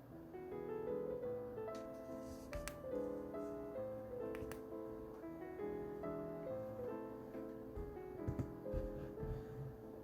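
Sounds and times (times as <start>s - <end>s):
background piano music: 0.0s - 10.0s.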